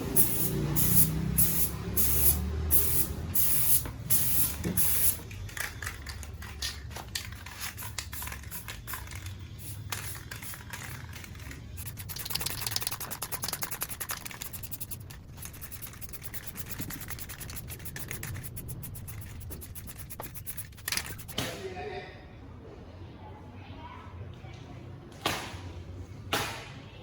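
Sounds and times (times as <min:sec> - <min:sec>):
hand sanding strokes: 0:11.8 - 0:21.4.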